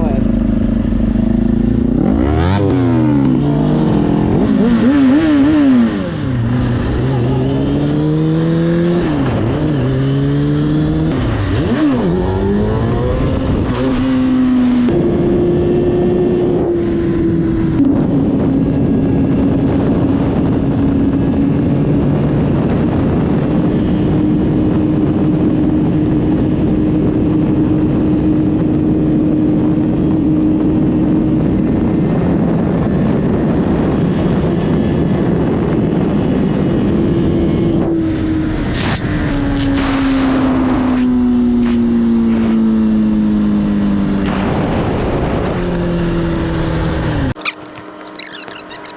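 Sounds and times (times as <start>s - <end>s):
motorcycle engine revving: 0.0s - 27.9s
wind and road noise: 0.0s - 48.9s.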